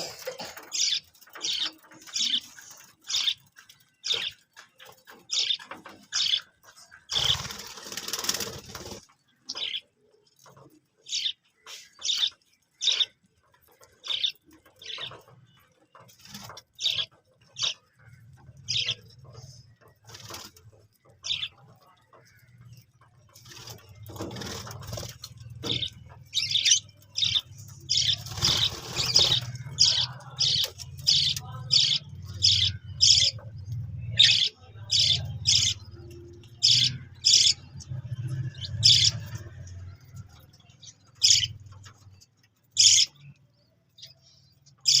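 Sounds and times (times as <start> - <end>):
budgerigars chirping: 0.5 - 2.4, 5.3 - 6.5, 14.0 - 15.3, 16.8 - 18.1, 18.7 - 19.1, 23.6 - 39.5, 40.8 - 41.6, 42.8 - 43.2.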